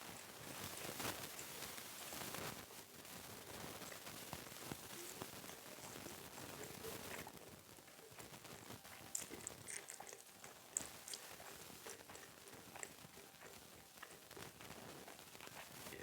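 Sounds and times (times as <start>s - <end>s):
soft chewing: 0.0s - 16.0s
mouth clicks and smacks: 4.8s - 16.0s.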